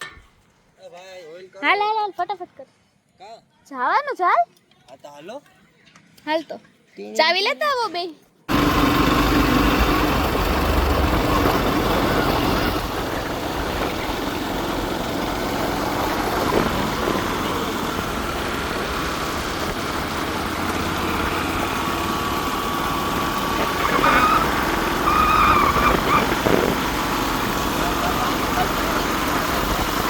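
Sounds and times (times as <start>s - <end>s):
vehicle engine and road noise: 8.5s - 30.0s.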